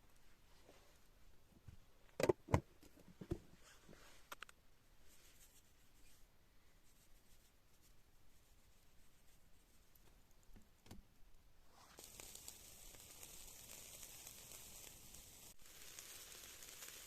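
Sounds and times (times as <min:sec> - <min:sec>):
food sizzling in a pan: 0:11.7 - 0:17.0.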